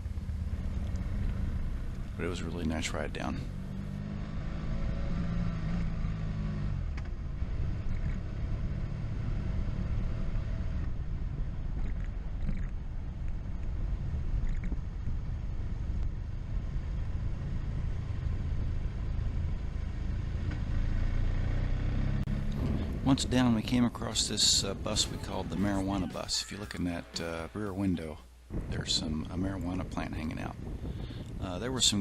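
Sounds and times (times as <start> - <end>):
motorcycle engine hum: 0.0 - 27.9
wind rushing over microphone: 22.3 - 32.0.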